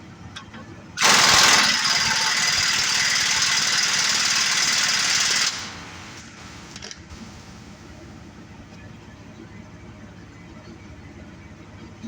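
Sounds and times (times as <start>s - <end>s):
pneumatic tool running: 1.0s - 7.8s.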